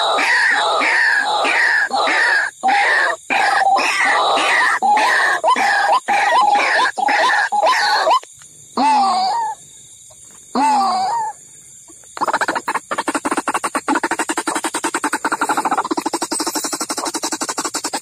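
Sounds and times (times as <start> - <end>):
waterhen calls: 0.0 - 8.2, 12.2 - 18.0
fast pulsed bird chatter: 0.0 - 8.3, 11.1 - 18.0.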